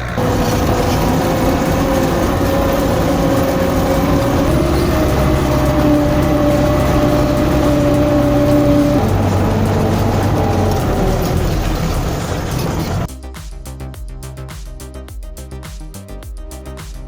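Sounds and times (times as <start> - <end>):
bulldozer diesel engine running: 0.0 - 13.1.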